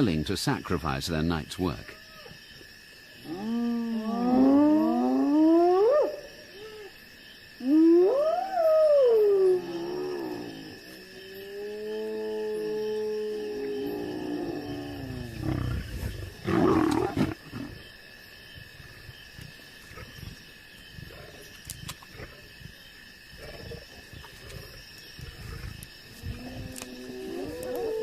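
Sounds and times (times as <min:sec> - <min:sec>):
lions growling and snarling: 0:09.6 - 0:17.9, 0:21.0 - 0:28.0
hyenas whooping: 0:26.4 - 0:28.0.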